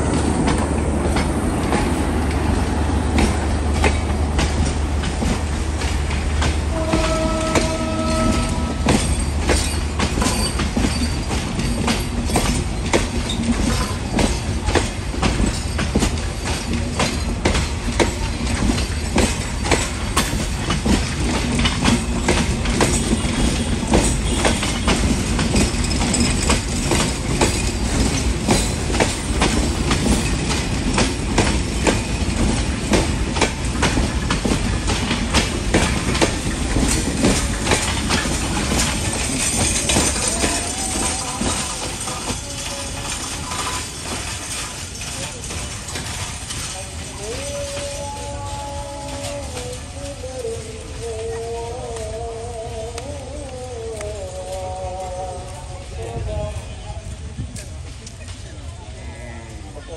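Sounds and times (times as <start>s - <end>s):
train rumble: 0.0s - 59.9s
train wheels clacking over rail joints: 0.0s - 59.9s
train horn blast: 6.6s - 9.1s, 23.2s - 25.2s.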